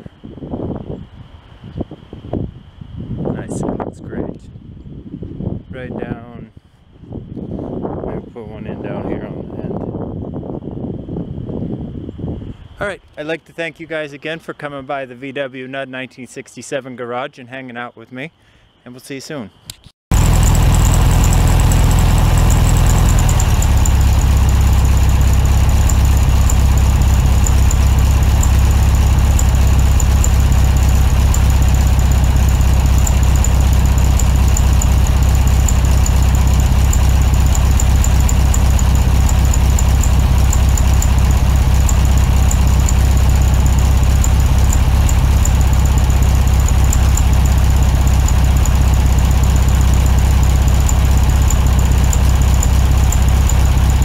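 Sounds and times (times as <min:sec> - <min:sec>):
car engine running: 0:20.1 - 0:54.0.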